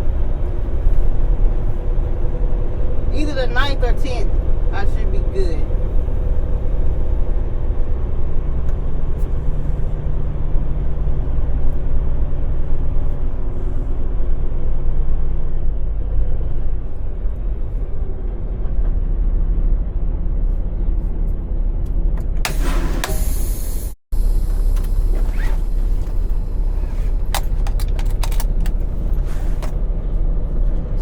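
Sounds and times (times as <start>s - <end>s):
diesel truck engine rumbling: 0.0s - 31.0s
low hum: 5.6s - 31.0s.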